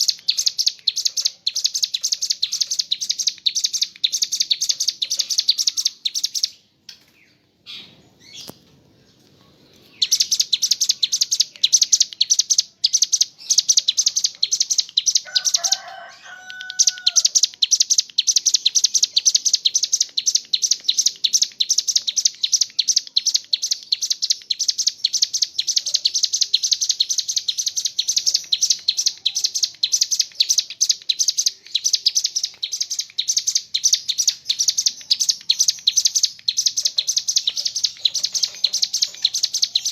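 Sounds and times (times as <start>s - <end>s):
bird high-pitched trill: 0.0s - 6.6s, 10.0s - 39.9s.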